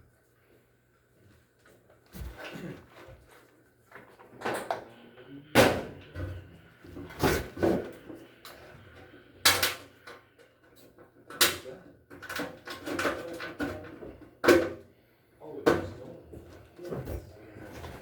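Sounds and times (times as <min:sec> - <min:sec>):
rustling and scraping: 0:16.4 - 0:18.0.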